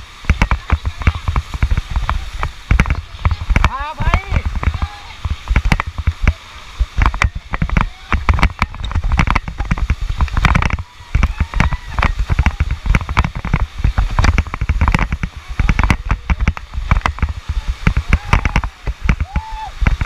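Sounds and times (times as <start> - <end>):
whitewater splashing: 0.0 - 20.0
wind buffeting microphone: 0.0 - 20.0
people shouting: 18.1 - 19.8.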